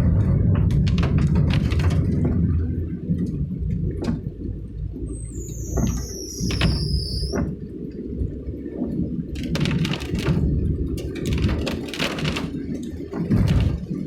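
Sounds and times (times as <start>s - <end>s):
car engine and road rumble: 0.0s - 14.0s
high thin squeal: 5.2s - 7.4s.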